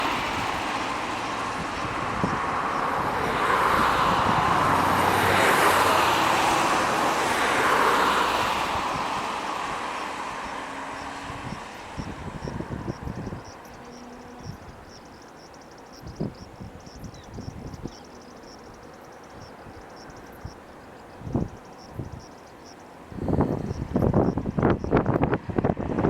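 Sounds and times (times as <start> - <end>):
jet airplane passing: 0.0 - 15.7.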